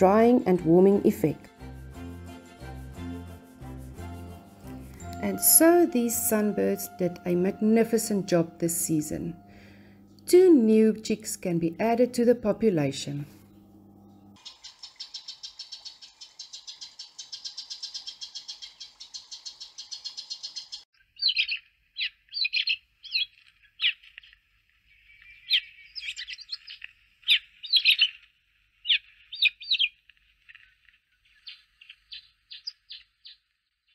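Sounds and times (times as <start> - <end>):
birds chirping: 13.4 - 33.9.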